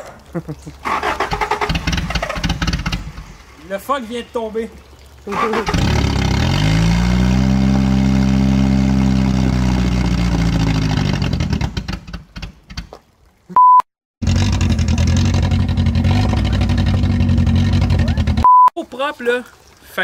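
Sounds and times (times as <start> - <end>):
car engine running: 5.8 - 12.0, 14.2 - 18.4
short high beep: 13.6 - 13.9.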